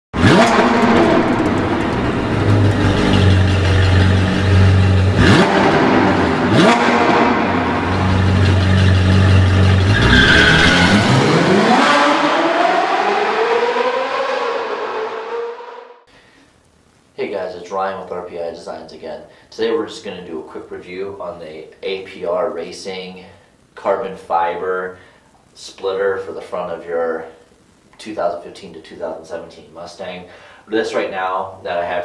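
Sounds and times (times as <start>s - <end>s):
sports car engine revving: 0.2s - 16.0s.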